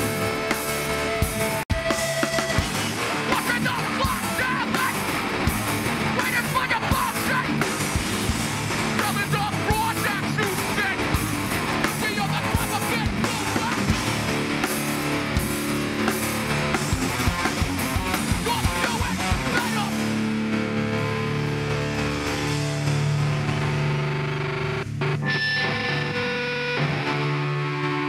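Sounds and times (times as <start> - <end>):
distorted electric guitars: 0.0 - 28.0
person shouting vocals: 3.3 - 5.0, 6.2 - 7.6, 9.0 - 11.1, 12.0 - 13.9, 18.3 - 20.0.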